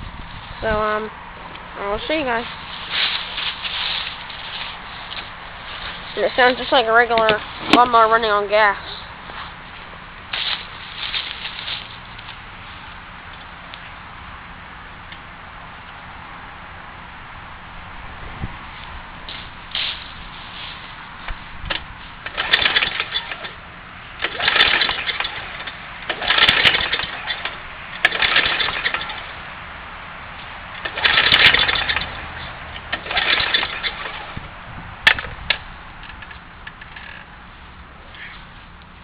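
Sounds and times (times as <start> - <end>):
lawn mower engine cranking: 2.2 - 8.4, 21.6 - 29.4, 30.7 - 34.4, 35.0 - 37.4.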